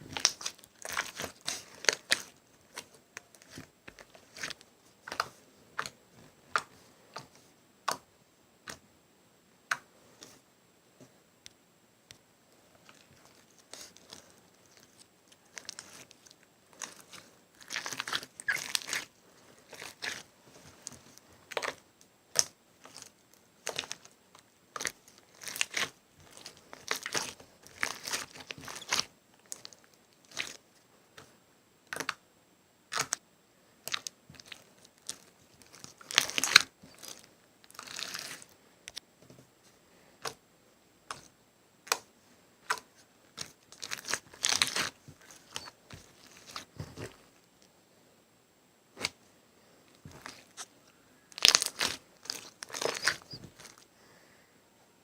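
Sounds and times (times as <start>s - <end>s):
slime squished by hand: 51.4s - 53.8s.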